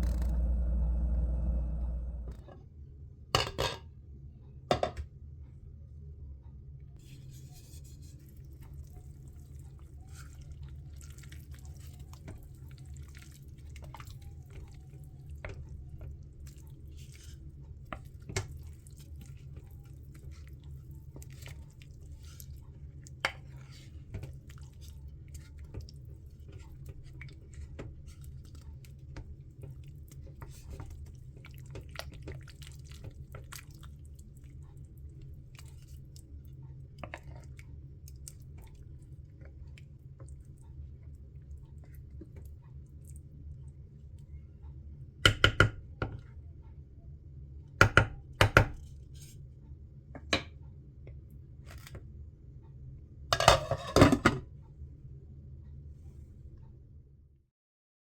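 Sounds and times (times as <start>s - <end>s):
steady low hum: 0.0s - 3.3s.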